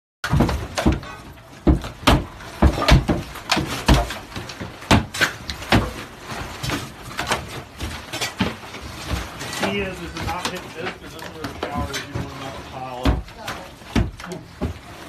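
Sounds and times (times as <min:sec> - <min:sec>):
knocks and bangs: 0:00.2 - 0:06.0.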